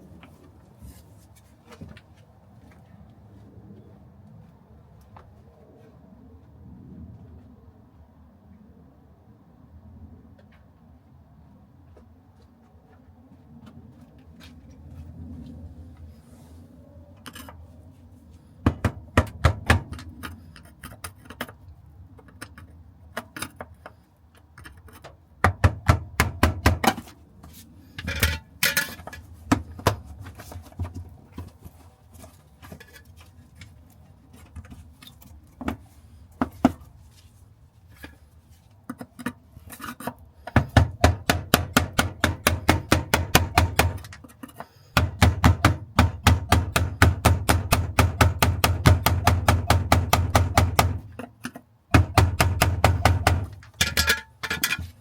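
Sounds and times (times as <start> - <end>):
hand tools tapping on metal: 28.0 - 30.0, 38.9 - 55.0.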